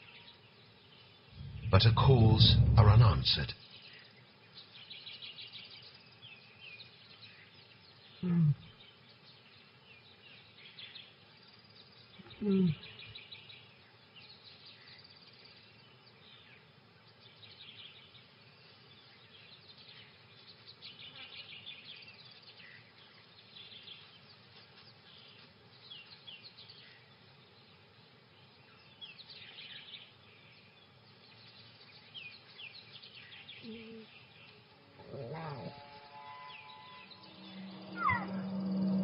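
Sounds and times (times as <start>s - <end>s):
low background hiss: 0.0s - 39.0s
small birds chirping: 0.0s - 39.0s
brief low call: 1.4s - 3.5s.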